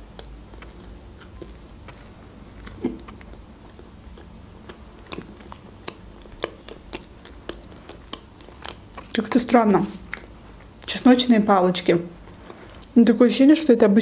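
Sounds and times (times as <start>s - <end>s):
wet mouth clicks while chewing: 0.0s - 9.2s, 10.0s - 10.7s.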